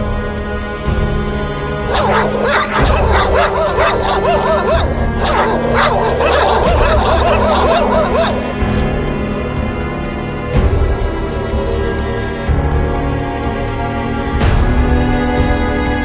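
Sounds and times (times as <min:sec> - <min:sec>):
dogs fighting barking and yelping: 0:00.9 - 0:08.6.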